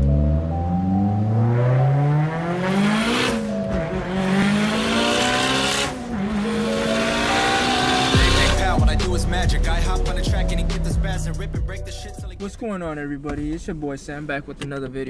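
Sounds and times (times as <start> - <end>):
car engine accelerating hard: 0.0 - 9.4.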